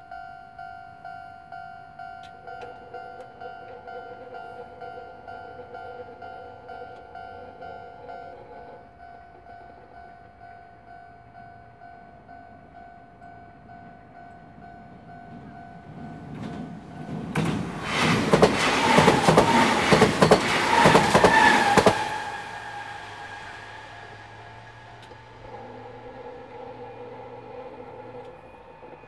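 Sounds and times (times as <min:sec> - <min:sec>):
steady high ringing tone: 0:00.0 - 0:17.1, 0:20.7 - 0:29.0
train wheels clattering over rail joints: 0:15.0 - 0:29.0.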